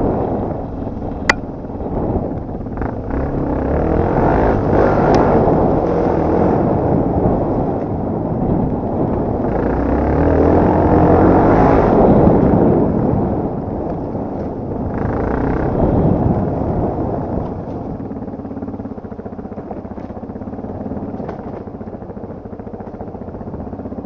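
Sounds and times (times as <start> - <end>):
dirt bike engine under load: 15.3 - 24.0.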